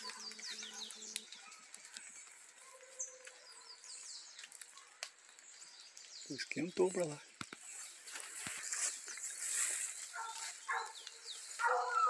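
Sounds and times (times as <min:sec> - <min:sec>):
small birds chirping: 0:00.0 - 0:12.0
faint clicks: 0:04.3 - 0:06.2.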